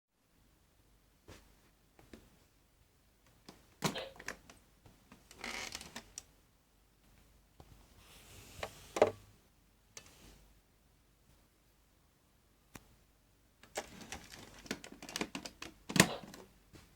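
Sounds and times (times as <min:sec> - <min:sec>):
plastic toy clicks and rattles: 0:13.6 - 0:16.4.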